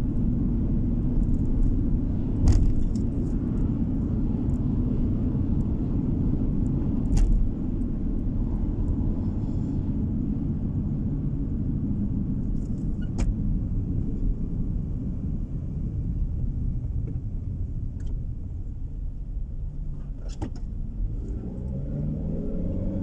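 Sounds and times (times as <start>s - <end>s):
car interior road rumble: 0.0s - 23.0s
sharp thumps: 2.4s - 3.1s.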